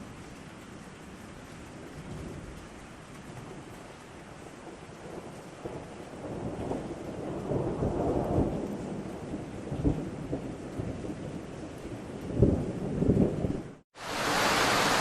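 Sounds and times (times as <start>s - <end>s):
steady rain: 0.0s - 15.0s
thunder rumbling: 4.6s - 13.8s.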